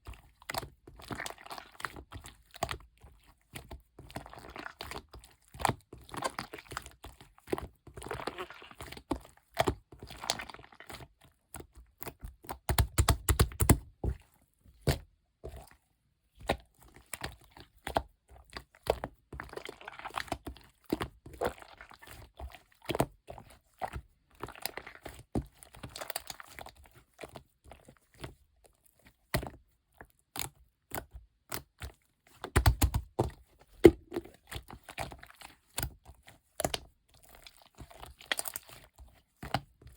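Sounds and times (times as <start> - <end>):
slime with beads squished: 4.2 - 11.1, 32.4 - 39.8.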